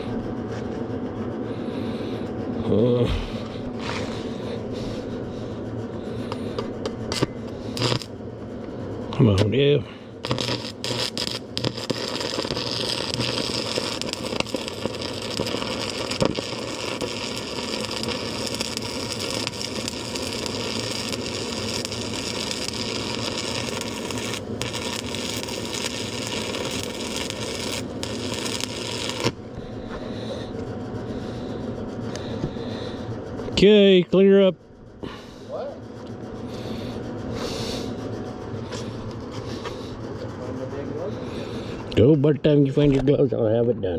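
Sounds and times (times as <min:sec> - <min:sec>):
welding arc crackling sizzle: 0:02.6 - 0:34.6.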